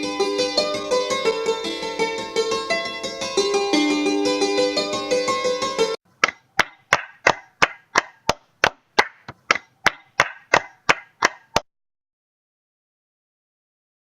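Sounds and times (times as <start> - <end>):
music: 0.0 - 6.0
sharp ringing knocks: 6.2 - 11.6.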